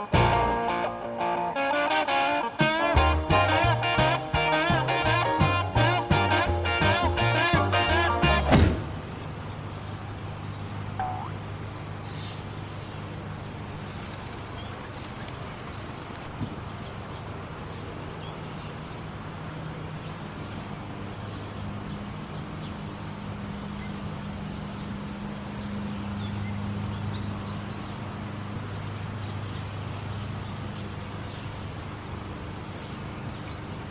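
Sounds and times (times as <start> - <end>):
faint bird chirps: 11.0 - 11.4.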